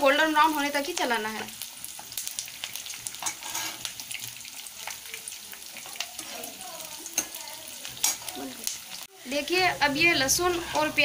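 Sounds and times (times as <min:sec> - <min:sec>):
vegetables sizzling in hot oil: 0:00.0 - 0:11.0
spatula scraping a pan: 0:02.7 - 0:04.4, 0:05.7 - 0:08.4, 0:10.2 - 0:11.0.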